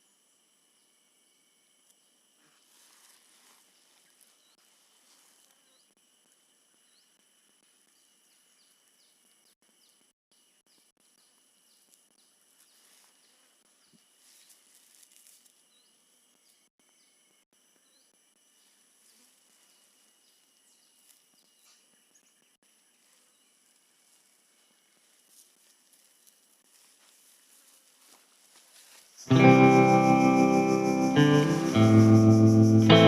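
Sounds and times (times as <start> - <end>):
insect trilling: 28.8 - 33.0.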